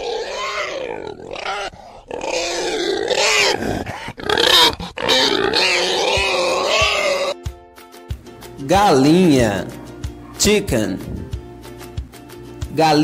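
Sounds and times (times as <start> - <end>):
pigs grunting and squealing: 0.0 - 7.4.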